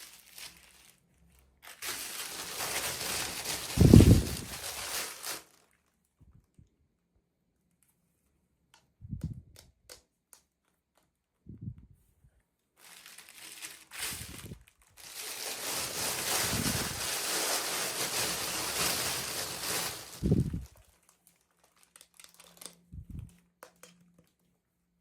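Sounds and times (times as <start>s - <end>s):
plastic packaging crinkling: 0.0s - 6.0s, 12.8s - 24.4s.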